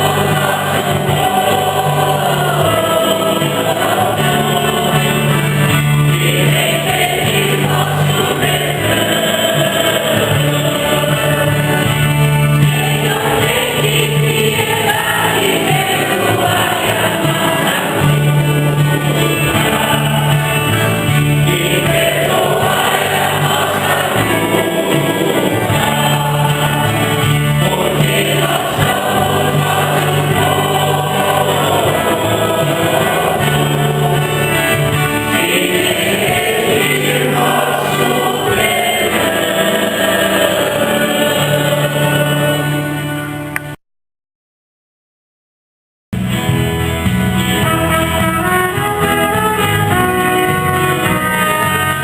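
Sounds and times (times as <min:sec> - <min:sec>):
choir singing a hymn: 0:00.0 - 0:43.5
instrumental accompaniment: 0:00.0 - 0:43.8, 0:46.2 - 0:52.0.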